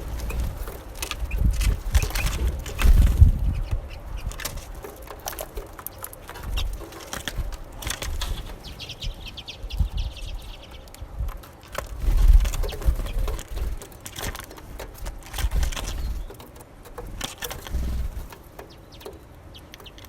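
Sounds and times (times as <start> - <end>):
high bird twittering: 0.0 - 11.2
fluttering wings: 0.0 - 19.2
birds pecking taps: 0.0 - 20.0.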